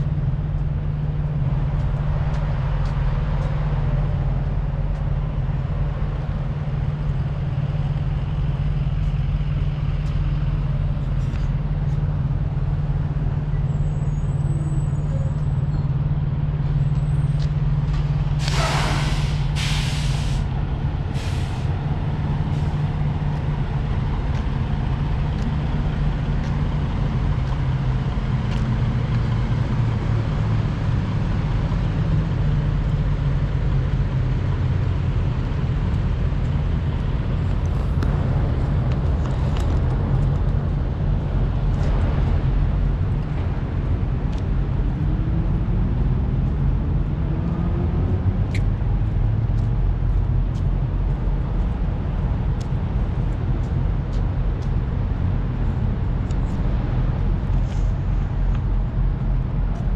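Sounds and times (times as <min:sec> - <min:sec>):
diesel truck engines idling: 0:00.0 - 0:59.9
air brake hisses: 0:18.4 - 0:20.5, 0:21.1 - 0:21.7.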